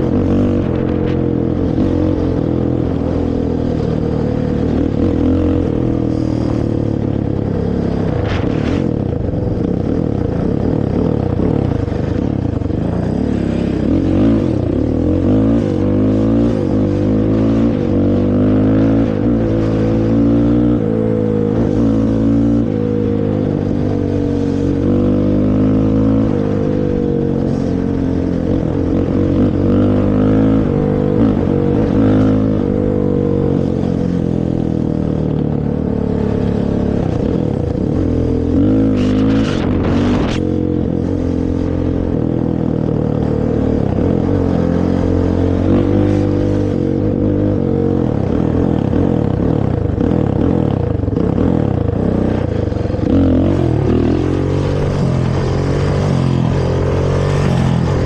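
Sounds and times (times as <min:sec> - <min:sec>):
quad engine revving: 0:36.4 - 0:40.5, 0:43.5 - 0:58.0.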